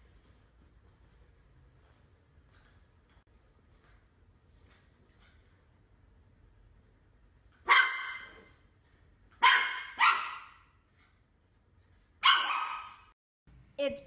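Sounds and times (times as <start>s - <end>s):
dog barking: 7.6s - 8.5s, 9.4s - 10.7s, 12.2s - 13.1s.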